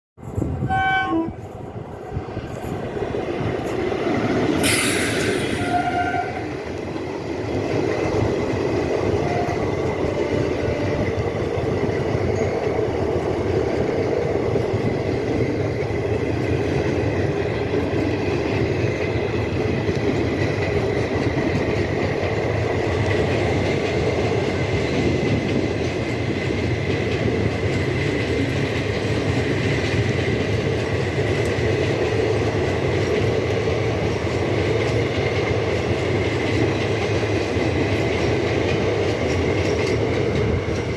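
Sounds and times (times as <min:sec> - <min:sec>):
carriages rumbling on track: 0:00.2 - 0:40.9
train horn blast: 0:00.6 - 0:01.4, 0:04.7 - 0:06.7, 0:09.1 - 0:11.4
brief hiss: 0:04.6 - 0:06.0.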